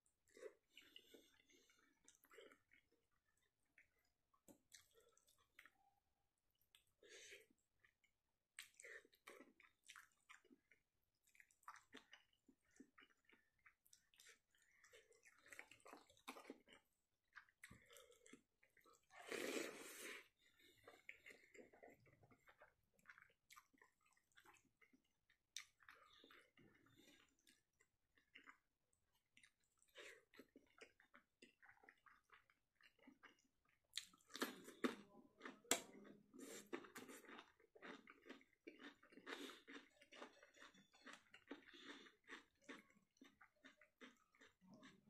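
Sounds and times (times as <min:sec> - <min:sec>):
person chewing food wetly: 0:00.0 - 0:45.0.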